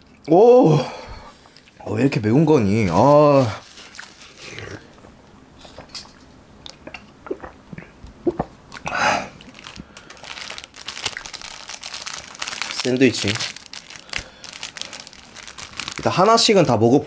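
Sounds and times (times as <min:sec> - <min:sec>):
breath: 0:00.7 - 0:01.6, 0:08.9 - 0:10.5, 0:14.0 - 0:15.1
plastic wrapping crinkling: 0:01.4 - 0:05.0, 0:09.4 - 0:16.8
person chewing food: 0:03.8 - 0:12.6
wet mouth clicks: 0:04.6 - 0:09.5.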